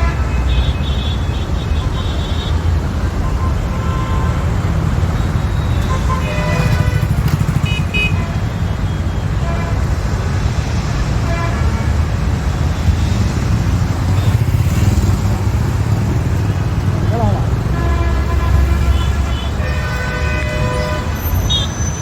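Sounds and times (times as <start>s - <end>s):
car horn toots: 0.0s - 9.9s, 17.6s - 22.0s
highway traffic rumble: 0.0s - 22.0s.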